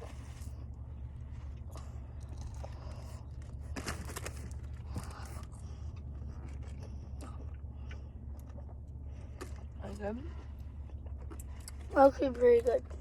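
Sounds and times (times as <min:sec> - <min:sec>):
crunching while eating: 0:00.0 - 0:11.9
small scraping noises: 0:00.0 - 0:13.0
steady low hum: 0:00.0 - 0:13.0.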